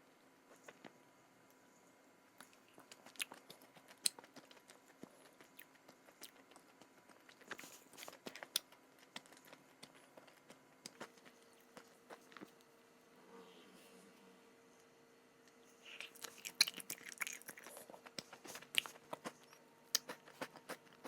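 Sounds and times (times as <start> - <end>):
crunching and chewing crisp snack: 2.4 - 12.7, 15.8 - 21.0.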